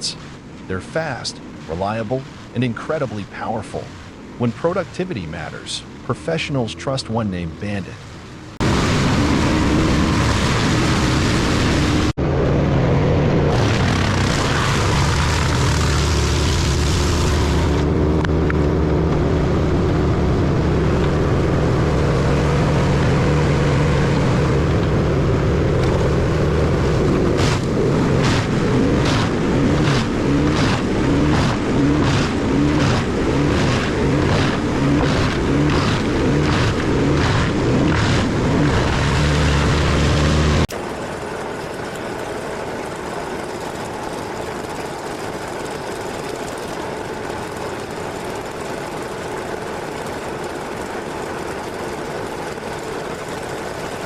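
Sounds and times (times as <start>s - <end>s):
wood chipper running: 13.0s - 54.0s.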